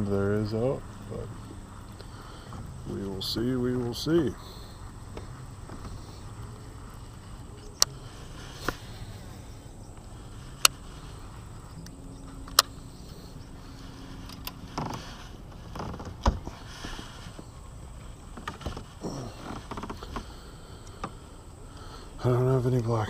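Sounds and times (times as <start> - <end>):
faint steady hum: 0.0 - 23.0
fishing gear clicking and knocking: 18.3 - 21.2.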